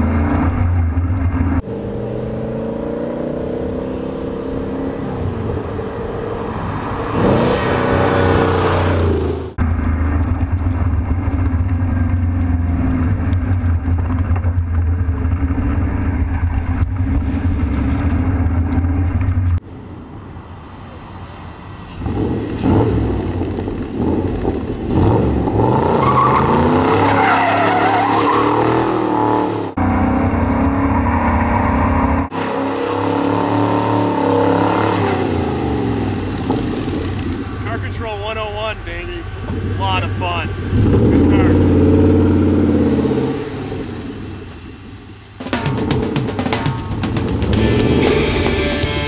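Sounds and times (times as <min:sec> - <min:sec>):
car engine droning and revving: 0:00.0 - 0:19.8, 0:21.1 - 0:49.0
tires squealing: 0:21.9 - 0:43.3.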